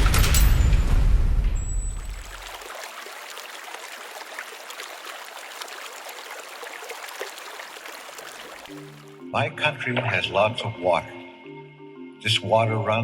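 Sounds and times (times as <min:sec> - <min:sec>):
stream water rushing: 0:01.6 - 0:09.2
water trickling splashes: 0:01.6 - 0:09.2.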